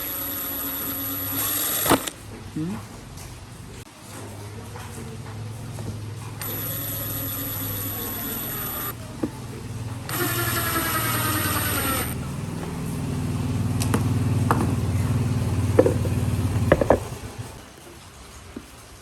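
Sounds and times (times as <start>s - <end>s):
high-pitched mechanical whine: 0.0s - 2.2s, 6.4s - 9.0s, 9.6s - 13.9s
low motor hum: 5.2s - 17.6s.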